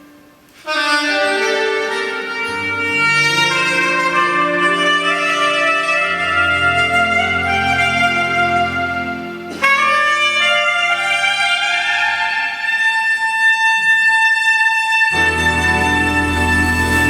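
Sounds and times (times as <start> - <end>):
soprano saxophone melody: 0.0 - 17.0
band playing: 0.4 - 12.7, 15.1 - 17.0
bass: 15.2 - 17.0.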